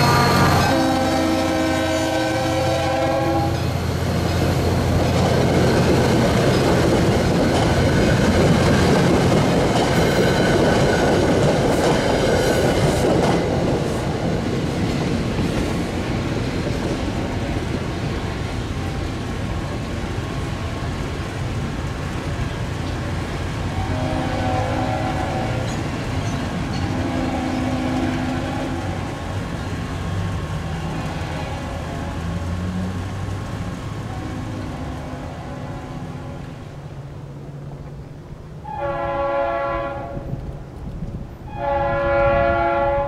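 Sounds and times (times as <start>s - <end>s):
locomotive chime air horn: 0.0s - 3.7s, 23.7s - 25.8s, 38.6s - 40.3s, 41.5s - 43.0s
train wheels clattering on rail: 2.9s - 24.4s, 25.0s - 34.1s, 40.2s - 41.4s.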